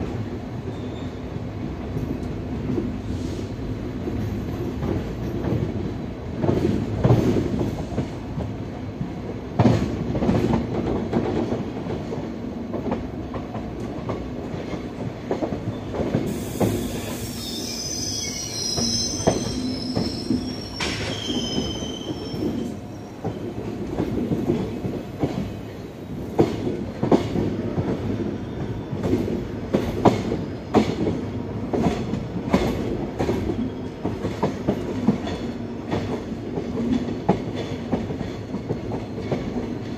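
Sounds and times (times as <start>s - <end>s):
train rumbling slowly: 0.0s - 39.9s
high-pitched wheel squeal: 16.8s - 22.7s.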